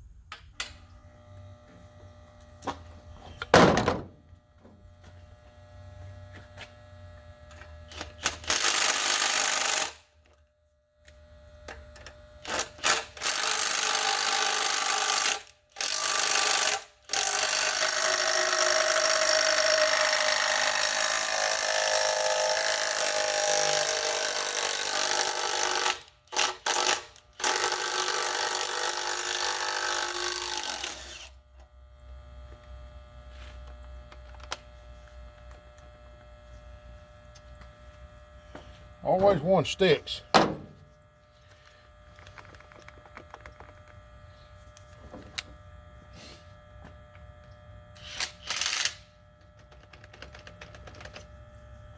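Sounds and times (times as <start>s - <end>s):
handheld power tool bursts: 12.4s - 31.3s, 48.0s - 49.1s.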